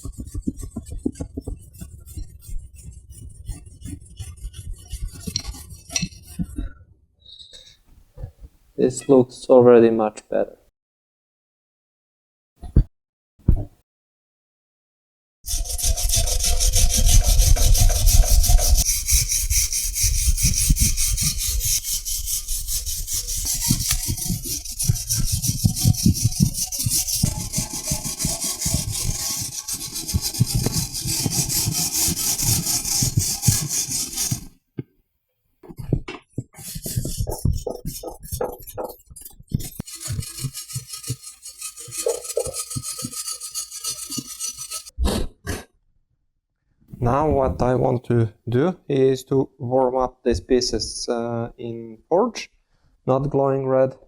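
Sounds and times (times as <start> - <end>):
wire brush scraping rusty iron: 0.0 - 6.5, 15.5 - 34.6, 36.6 - 44.9.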